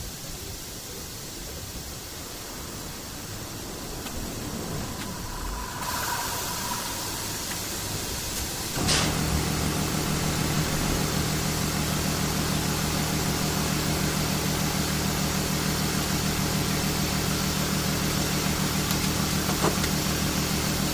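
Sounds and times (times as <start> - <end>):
car engine idling: 0.7 - 20.9
brief sharp sound: 4.2 - 9.4.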